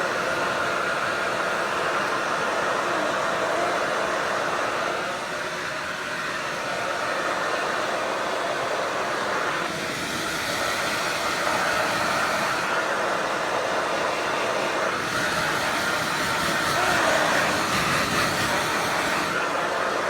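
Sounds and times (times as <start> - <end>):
hair dryer blowing: 0.0 - 20.0.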